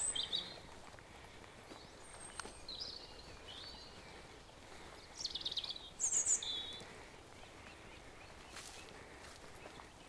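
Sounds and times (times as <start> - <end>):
outdoor background noise: 0.0 - 10.0
small birds chirping: 0.0 - 10.0.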